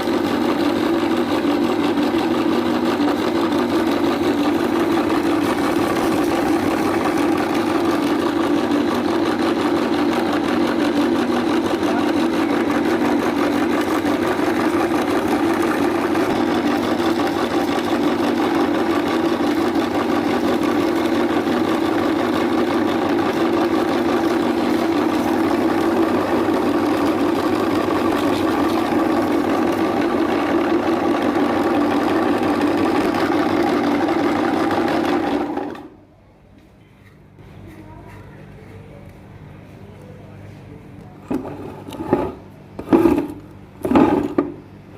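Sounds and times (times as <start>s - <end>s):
meat grinder motor humming: 0.0s - 36.0s.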